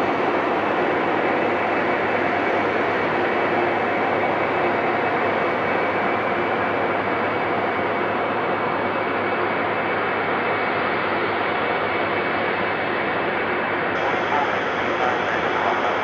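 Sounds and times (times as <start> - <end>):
jet engines roaring: 13.5 - 16.0.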